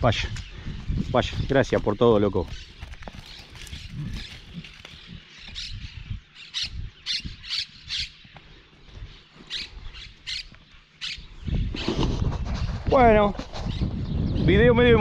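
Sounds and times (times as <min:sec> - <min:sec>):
bird squawking: 0:06.4 - 0:08.2, 0:09.5 - 0:11.9.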